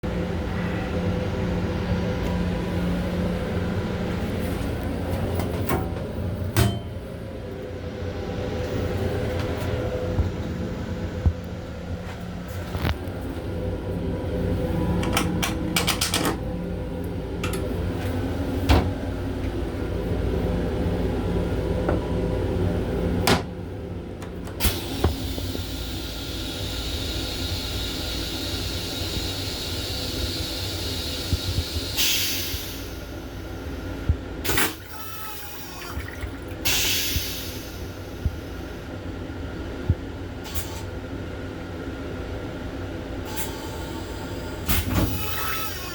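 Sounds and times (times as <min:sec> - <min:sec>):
moving train rumble: 0:00.0 - 0:45.9
knocks and clicks: 0:15.0 - 0:16.4
toilet flushing hiss: 0:24.6 - 0:38.9, 0:40.4 - 0:40.9, 0:43.2 - 0:45.9.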